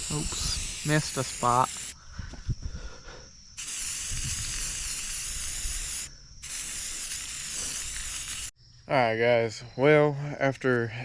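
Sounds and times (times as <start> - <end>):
spray paint can hissing: 0.0 - 2.0, 3.6 - 8.6.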